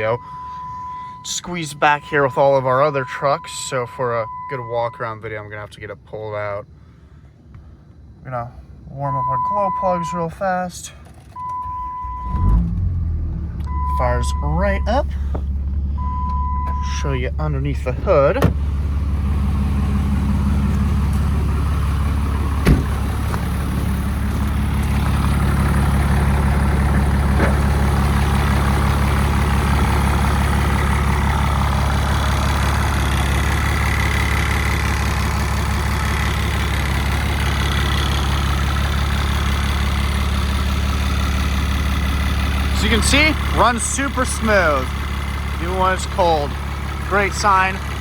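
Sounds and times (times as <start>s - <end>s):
diesel engine idling: 0.0s - 48.0s
sharp clunk: 22.6s - 23.5s.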